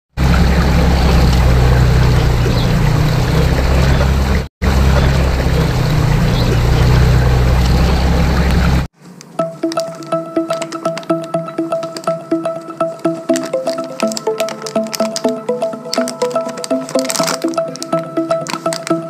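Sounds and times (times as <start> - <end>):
churning whirlpool water: 0.2 - 8.9.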